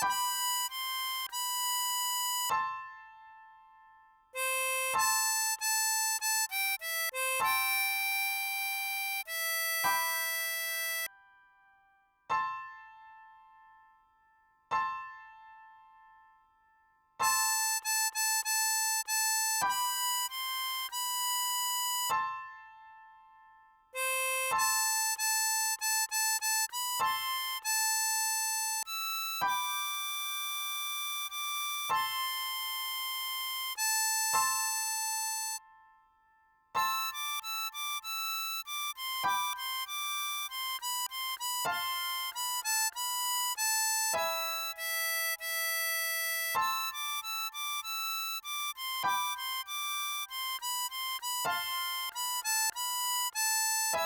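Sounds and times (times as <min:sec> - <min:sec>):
harmonica playing melody: 0:00.0 - 0:02.6, 0:04.4 - 0:11.1, 0:17.2 - 0:22.1, 0:24.0 - 0:35.6, 0:36.8 - 0:54.0.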